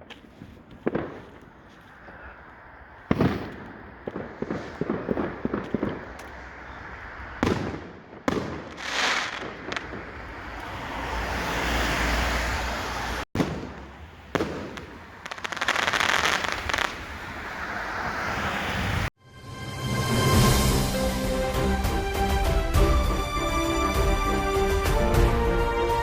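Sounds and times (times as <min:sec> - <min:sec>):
fireworks crackling: 0:00.0 - 0:12.0, 0:13.4 - 0:19.0
fireworks bangs: 0:00.0 - 0:12.1, 0:13.0 - 0:19.1.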